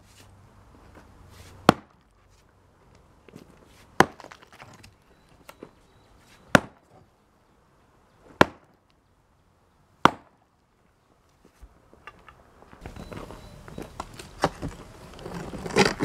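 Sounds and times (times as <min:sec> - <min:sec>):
sledgehammer striking concrete: 0:01.6 - 0:02.0, 0:04.0 - 0:04.4, 0:06.5 - 0:06.8, 0:08.4 - 0:08.7, 0:10.0 - 0:10.4.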